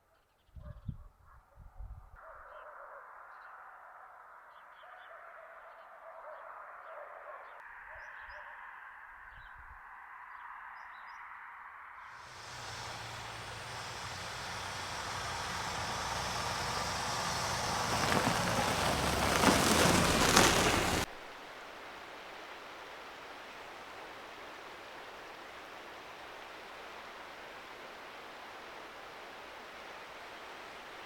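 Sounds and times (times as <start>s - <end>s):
strong wind gusts: 12.3s - 21.1s
soft steady hiss: 12.3s - 31.0s.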